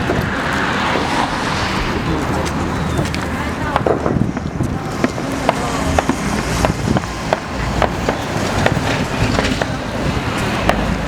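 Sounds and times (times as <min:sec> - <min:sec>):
low rumble: 0:00.0 - 0:07.2
fireworks bangs and pops: 0:02.4 - 0:11.0.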